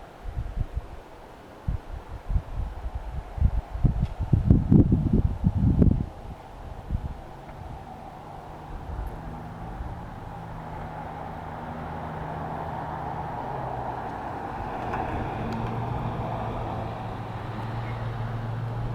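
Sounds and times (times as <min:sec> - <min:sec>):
vehicle engine humming: 0:04.8 - 0:18.9.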